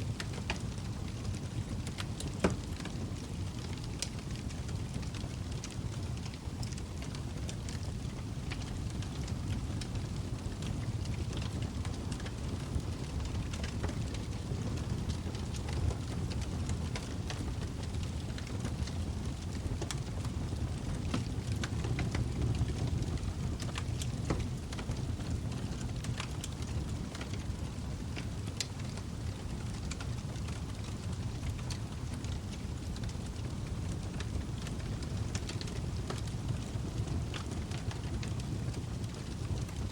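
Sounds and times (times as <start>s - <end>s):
burning wood crackling and popping: 0.0s - 39.9s
low rumble of flame: 0.0s - 39.9s.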